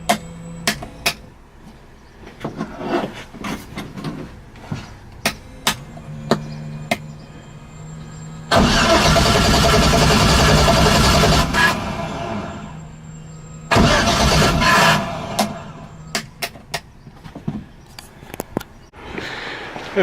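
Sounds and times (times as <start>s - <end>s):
engine cranking on starter: 8.5s - 12.8s, 13.7s - 16.1s.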